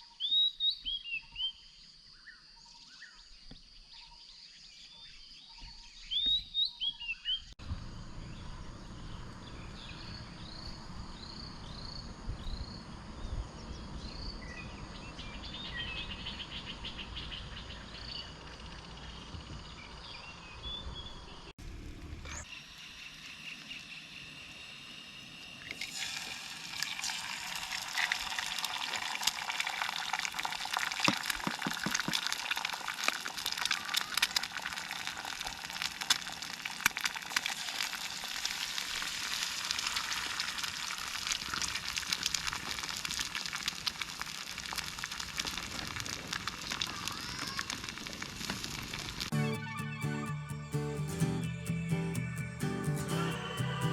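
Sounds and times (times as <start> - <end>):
birds chirping: 0.0 - 21.5, 49.3 - 53.9
low steady rumble: 7.6 - 16.3
food sizzling in a pan: 24.4 - 49.3.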